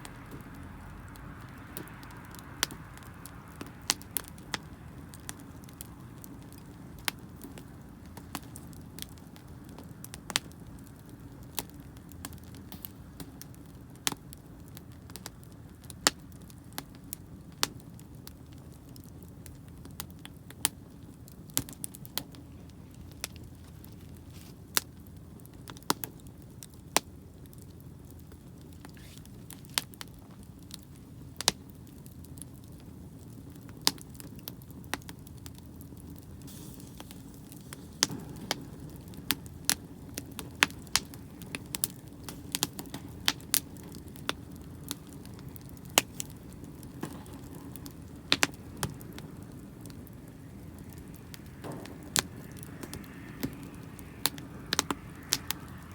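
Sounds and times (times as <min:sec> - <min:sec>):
low rumble: 0:00.0 - 0:05.2, 0:47.8 - 0:55.9
campfire crackling and popping: 0:00.0 - 0:55.9.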